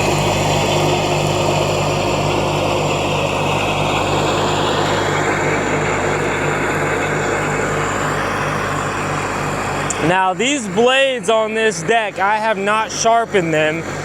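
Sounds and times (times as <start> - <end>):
mower deck cutting grass: 0.0 - 14.0
tractor diesel engine running: 0.0 - 14.0.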